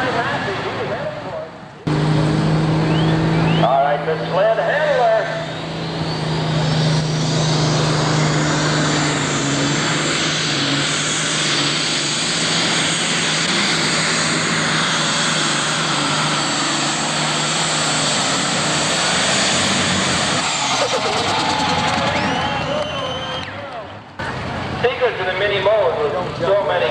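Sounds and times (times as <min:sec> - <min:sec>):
diesel engine at full throttle: 0:00.0 - 0:26.9.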